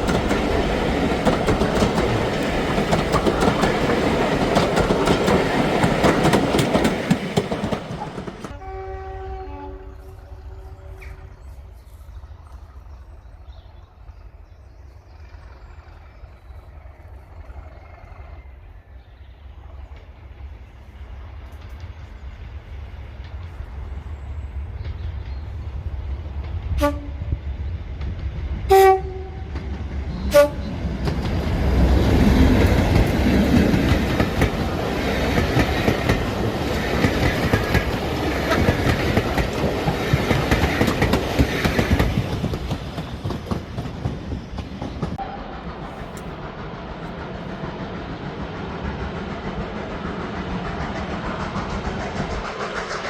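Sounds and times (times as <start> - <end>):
train wheels rumbling on rail: 0.0 - 53.0
train horn toots: 8.4 - 11.4, 26.7 - 27.4, 28.7 - 29.6, 30.2 - 30.8.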